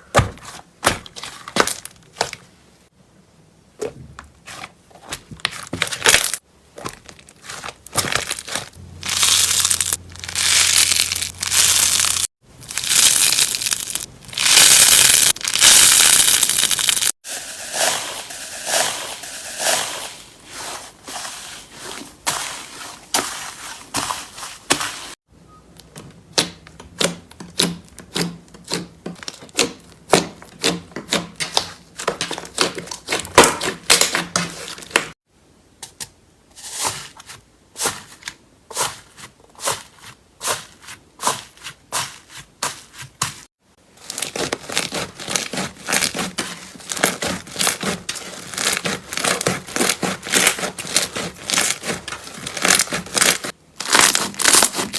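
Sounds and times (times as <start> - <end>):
slime crackling and popping: 7.9 - 17.2, 46.9 - 54.9.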